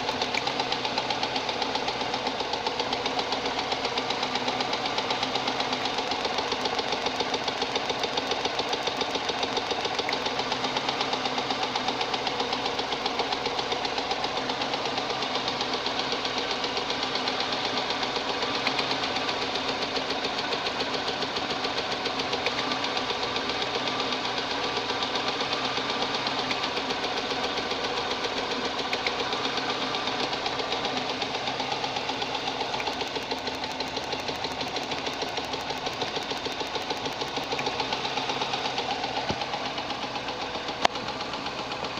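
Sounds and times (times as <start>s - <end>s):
car engine running: 0.0s - 41.9s
piston knocking: 28.8s - 41.1s.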